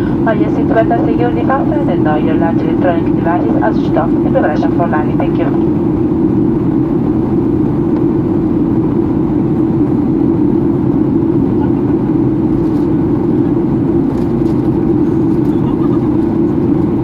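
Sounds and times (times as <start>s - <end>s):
airplane cabin drone: 0.0s - 17.0s.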